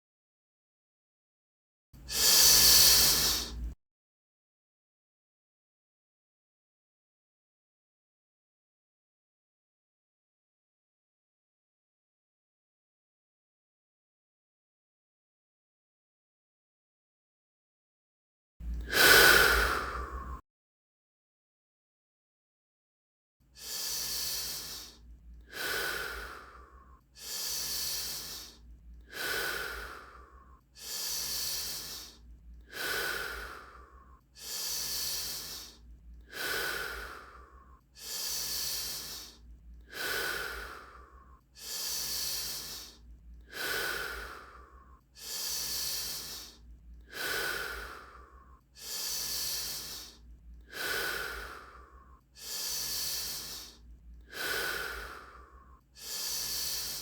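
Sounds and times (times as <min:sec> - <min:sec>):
person breathing forcefully: 0:02.0 - 0:03.8, 0:18.7 - 0:20.4, 0:23.6 - 0:57.0.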